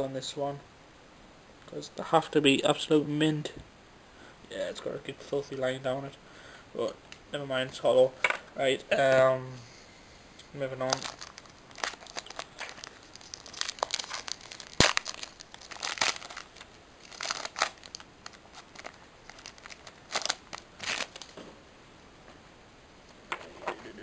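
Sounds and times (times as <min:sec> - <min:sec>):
cards rustling: 0:10.7 - 0:21.4
foil wrapper tearing and crinkling: 0:10.9 - 0:21.4.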